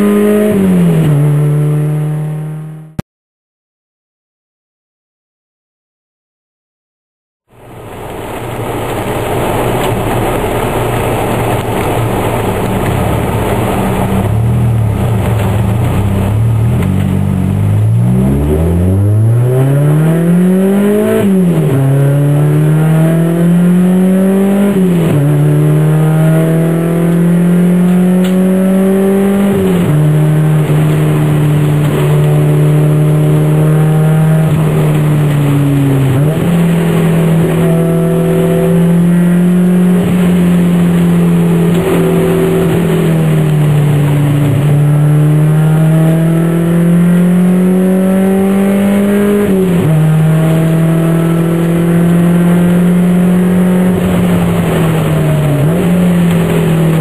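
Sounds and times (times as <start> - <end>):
car engine revving: 0.0 - 3.0, 7.6 - 57.0
tyres hissing on wet road: 7.6 - 17.9, 53.3 - 57.0.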